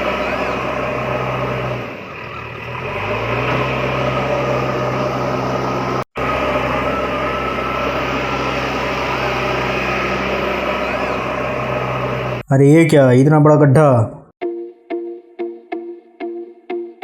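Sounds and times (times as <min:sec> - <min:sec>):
small motor humming: 0:00.0 - 0:12.4.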